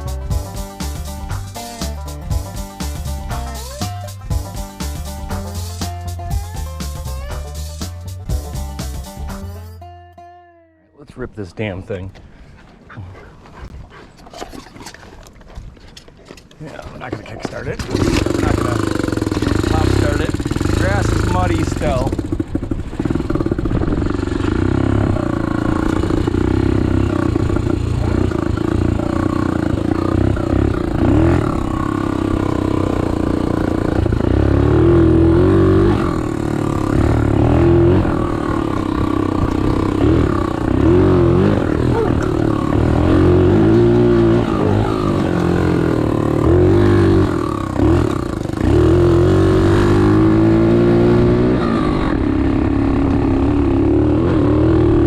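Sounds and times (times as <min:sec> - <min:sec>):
motorbike engine revving: 0:17.6 - 0:55.0.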